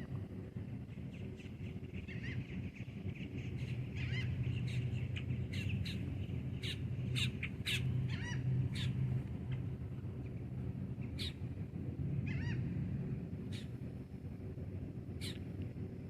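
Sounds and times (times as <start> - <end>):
steady low hum: 0.0 - 16.0
crow-like bird calls: 2.0 - 2.5, 3.6 - 4.8, 6.6 - 9.0, 12.2 - 12.7, 15.2 - 15.4.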